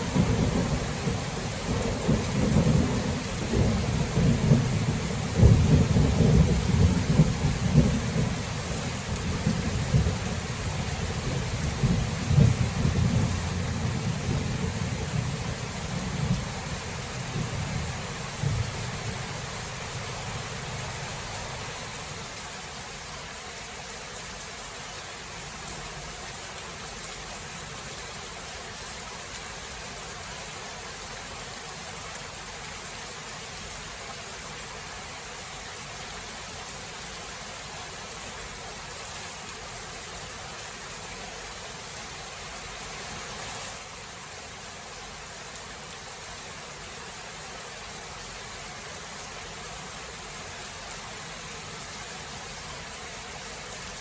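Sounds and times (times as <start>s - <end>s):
thunder rumble: 0.0s - 22.1s
heavy rain: 0.0s - 54.0s.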